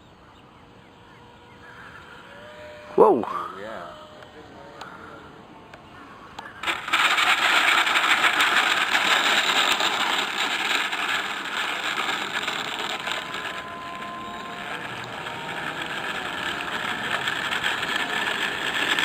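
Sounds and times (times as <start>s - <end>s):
model airplane motor running: 0.7s - 19.0s
wheels rattling: 6.4s - 19.0s.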